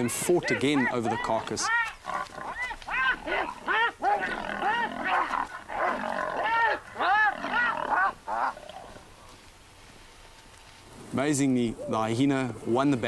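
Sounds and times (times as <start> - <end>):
hyena and lioness snarling: 0.0 - 9.4.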